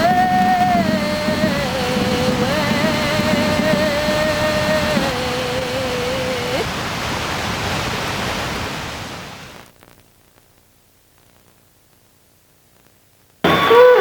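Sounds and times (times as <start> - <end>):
steady rushing noise: 0.0 - 9.7
faint hiss: 0.0 - 13.5
held tone: 13.4 - 14.0.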